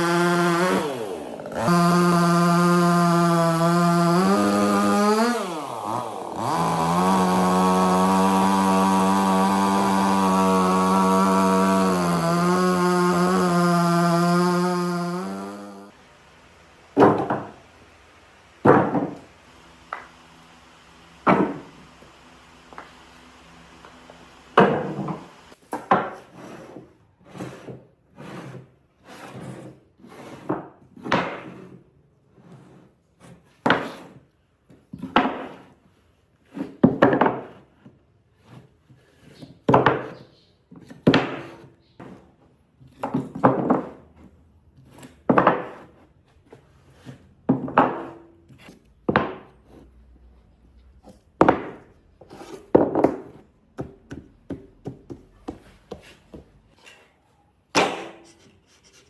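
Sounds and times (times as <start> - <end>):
tool striking wood: 0.0 - 15.9, 17.0 - 17.6, 18.6 - 26.2, 41.0 - 41.7, 45.0 - 46.0, 47.5 - 49.6, 51.4 - 56.5, 57.7 - 58.5.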